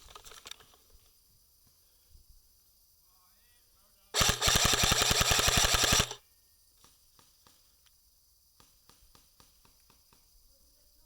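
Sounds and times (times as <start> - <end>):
airsoft rifle automatic burst: 4.2 - 6.2.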